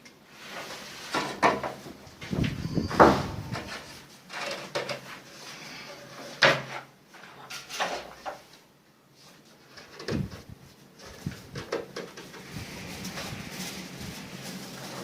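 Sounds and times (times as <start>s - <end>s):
wooden knocks and bangs: 1.2s - 3.8s.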